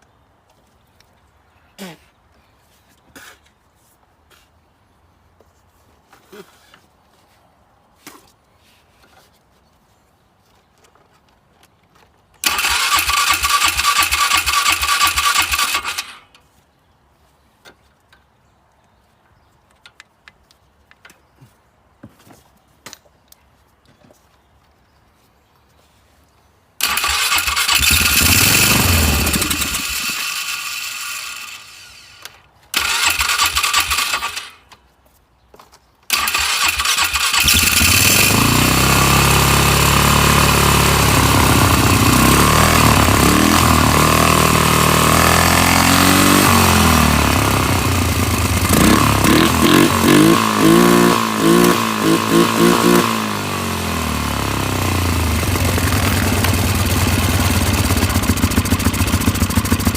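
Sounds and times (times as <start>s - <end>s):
atv engine starting and running: 12.4s - 16.4s, 26.8s - 34.7s, 36.1s - 59.9s.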